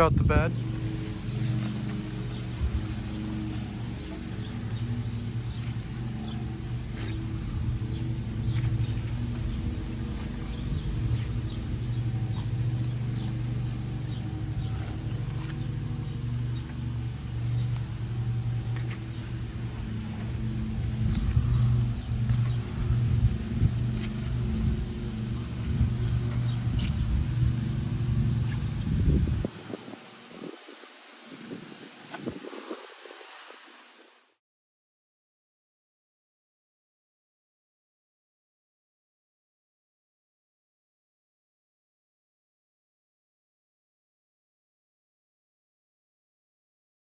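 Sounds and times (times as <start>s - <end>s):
pressure washer running: 0.0s - 33.4s.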